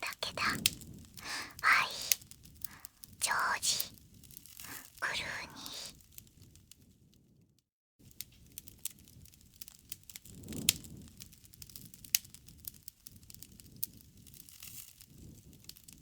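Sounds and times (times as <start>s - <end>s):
fire flames rumbling: 8.0s - 16.0s
wood fire popping and snapping: 8.0s - 16.0s.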